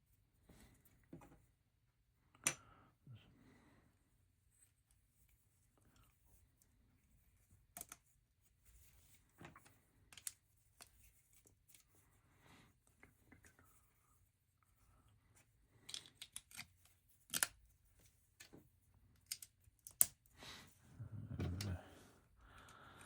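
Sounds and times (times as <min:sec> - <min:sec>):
plastic bricks clicking together: 0:15.8 - 0:16.7.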